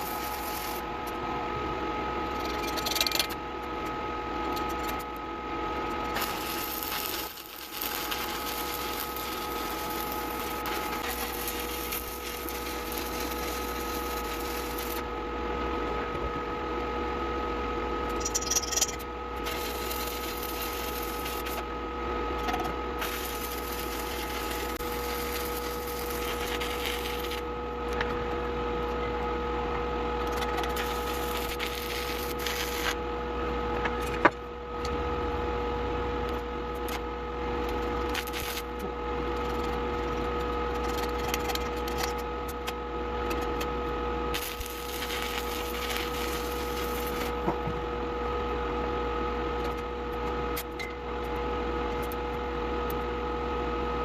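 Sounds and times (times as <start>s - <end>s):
steady machine hum: 0.0s - 54.0s.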